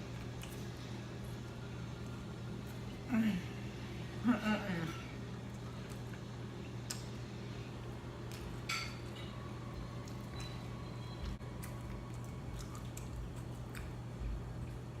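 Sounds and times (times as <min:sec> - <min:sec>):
steady low hum: 0:00.0 - 0:15.0
crunchy food chewing: 0:09.8 - 0:15.0.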